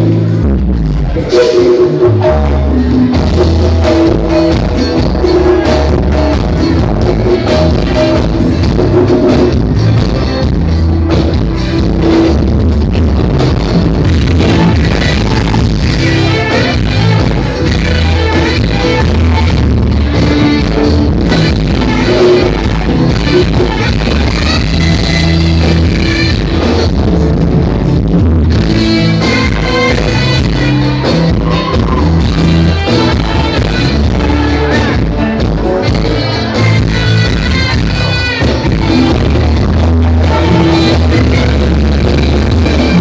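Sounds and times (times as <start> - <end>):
heavy held bass notes: 0.0 - 43.0
loud music over pa system: 0.0 - 43.0
person singing: 28.7 - 43.0.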